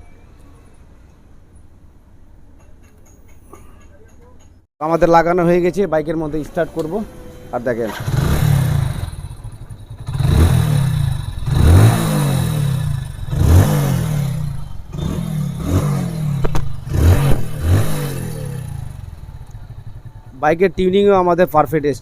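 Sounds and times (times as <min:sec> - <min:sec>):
motorcycle engine idling and revving: 0:05.3 - 0:22.0.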